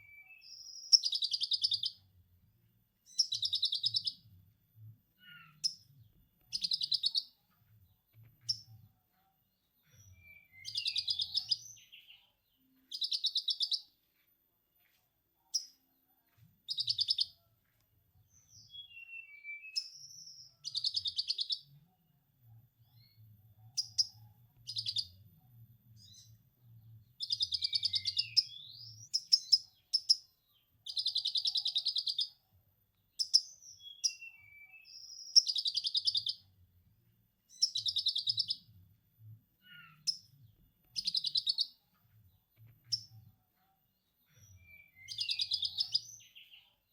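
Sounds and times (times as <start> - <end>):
bird high chirps and whistles: 3.1 - 4.2, 6.5 - 7.3, 10.0 - 12.1, 18.5 - 21.6, 27.2 - 30.2, 33.2 - 36.4, 37.5 - 38.6, 41.0 - 41.7, 44.4 - 46.5.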